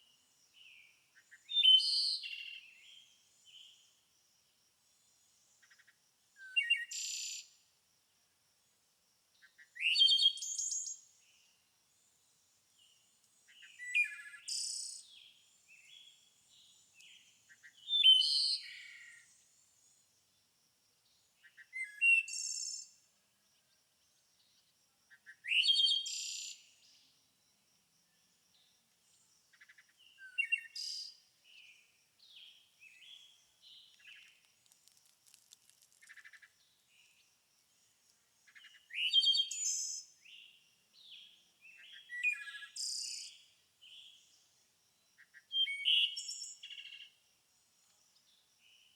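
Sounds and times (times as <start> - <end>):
songbird singing: 0.0 - 7.6, 9.3 - 20.4, 21.0 - 47.2.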